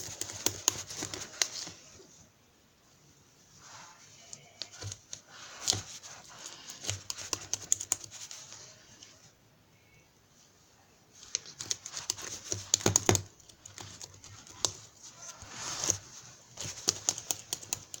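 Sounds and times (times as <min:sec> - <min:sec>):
rustling handling noise: 0:00.0 - 0:02.3, 0:02.9 - 0:09.3, 0:11.1 - 0:18.0
irregular clicks and taps: 0:06.7 - 0:08.3, 0:11.2 - 0:14.9, 0:16.6 - 0:18.0.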